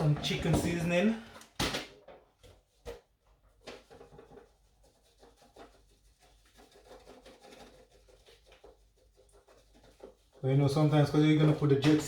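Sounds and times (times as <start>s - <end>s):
scratchy rustling of seasoning: 3.5s - 11.8s.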